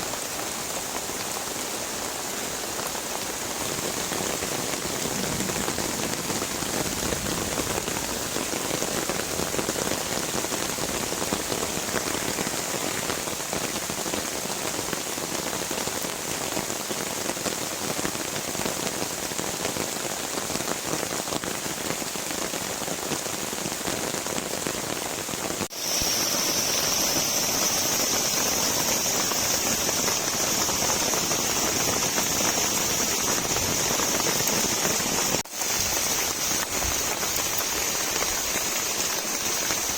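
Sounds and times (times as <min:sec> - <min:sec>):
heavy rain: 0:00.0 - 0:39.9
high-pitched hiss: 0:25.7 - 0:39.9.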